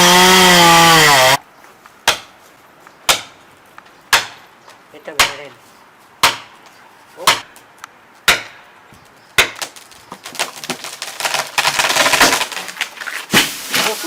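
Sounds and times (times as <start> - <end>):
wood splintering: 0.0 - 1.4, 9.4 - 14.0
sharp blows on wood: 6.2 - 6.6, 8.2 - 8.6.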